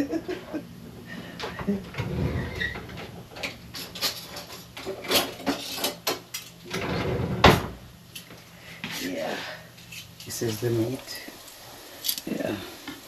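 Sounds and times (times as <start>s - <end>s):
dishes and utensils clattering: 2.6s - 6.6s.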